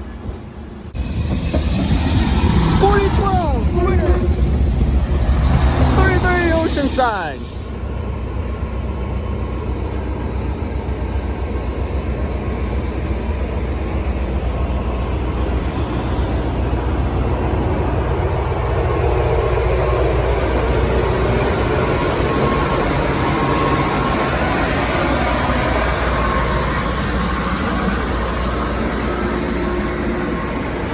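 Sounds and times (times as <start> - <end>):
train rumbling: 0.0 - 30.9.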